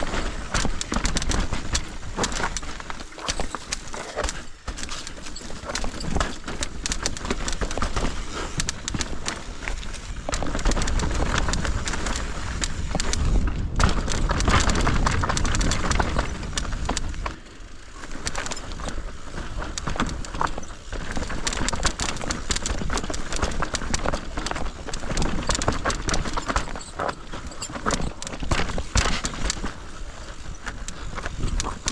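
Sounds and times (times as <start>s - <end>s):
tyres rattling over rock: 0.0s - 8.1s, 8.7s - 31.9s
bike chain and frame shaking: 0.0s - 31.9s.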